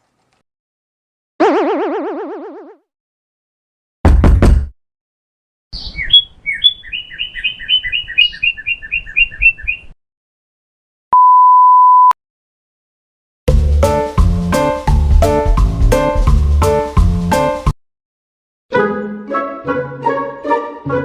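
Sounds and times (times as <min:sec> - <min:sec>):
high bird-like chirps: 0:05.8 - 0:10.0
censor bleep: 0:11.1 - 0:12.2.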